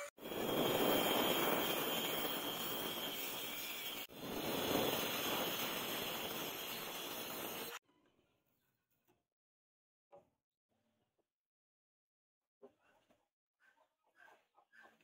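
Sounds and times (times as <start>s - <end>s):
rushing machine noise with whine: 0.2s - 7.8s.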